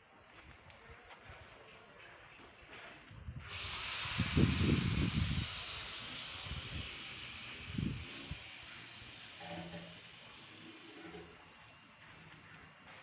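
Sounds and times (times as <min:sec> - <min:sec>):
steady hiss: 0:03.5 - 0:11.2.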